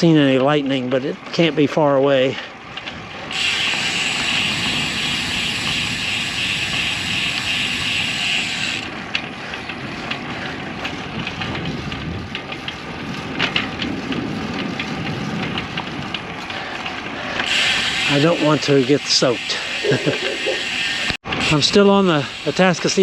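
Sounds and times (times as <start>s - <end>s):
tyres rumbling on trail: 0.0s - 23.0s
wind on microphone: 2.7s - 18.1s
steady high hiss: 19.8s - 21.2s.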